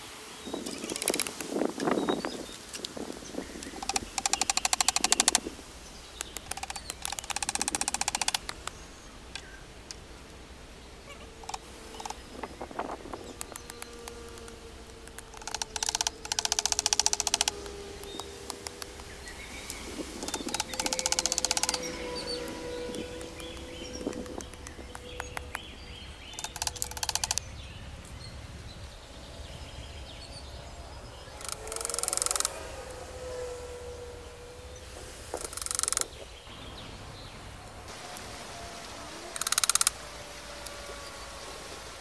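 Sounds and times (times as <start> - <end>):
birds chirping: 0.0 - 42.0
rapid rasping clicks: 0.6 - 10.4, 11.4 - 27.6, 31.4 - 32.7, 35.3 - 36.2, 39.2 - 42.0.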